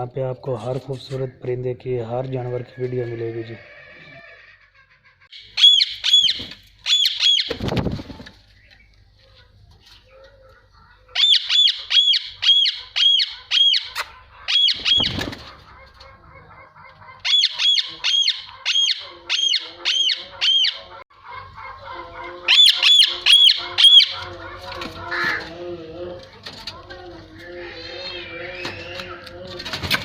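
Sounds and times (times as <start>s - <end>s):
soft bird chatter: 5.3s - 30.0s
parakeets screeching: 11.1s - 15.3s, 17.2s - 21.0s, 22.4s - 25.4s.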